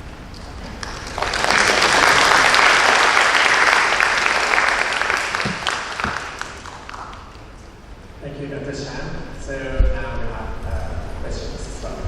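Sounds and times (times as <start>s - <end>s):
audience applauding: 0.7s - 7.5s.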